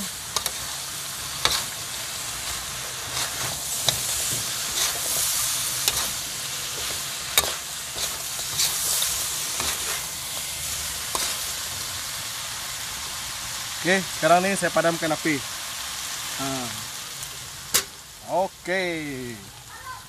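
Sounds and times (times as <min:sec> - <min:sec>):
metal spatula scraping a pan: 0:00.0 - 0:11.7
meat sizzling in a wok: 0:00.0 - 0:20.0.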